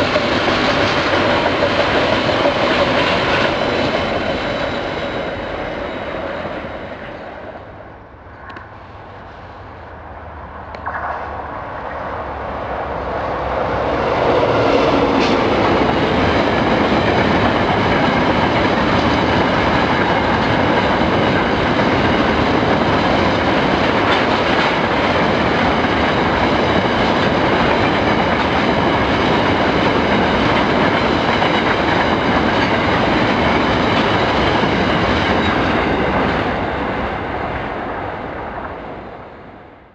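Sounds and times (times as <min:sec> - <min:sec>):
train wheels clattering over rails: 0:00.0 - 0:07.3, 0:13.4 - 0:37.0.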